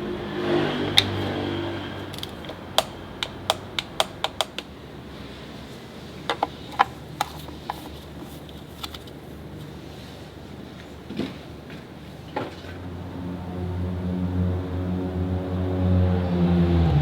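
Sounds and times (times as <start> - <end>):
sharp short clicks and taps: 2.2 - 4.7.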